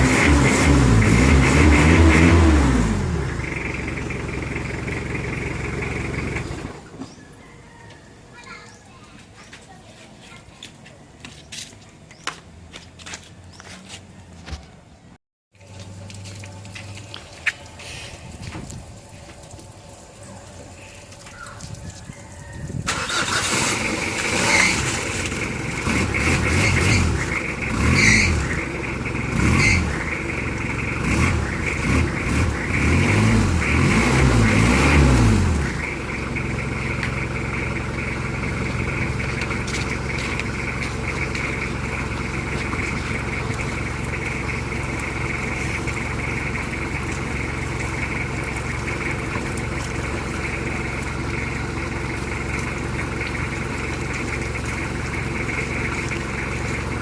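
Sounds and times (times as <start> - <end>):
car engine revving: 0.0 - 6.8, 22.9 - 50.8
car engine idling: 0.0 - 7.1, 22.9 - 57.0.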